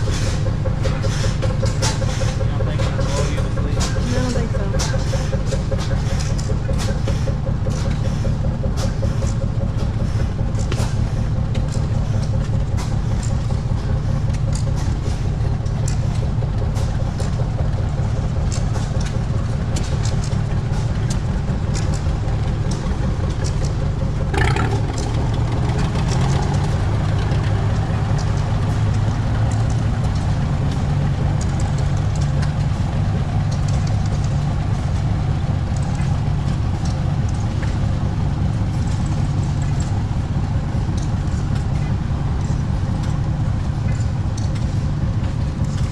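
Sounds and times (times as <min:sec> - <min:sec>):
engine running steadily: 0:00.0 - 0:45.9.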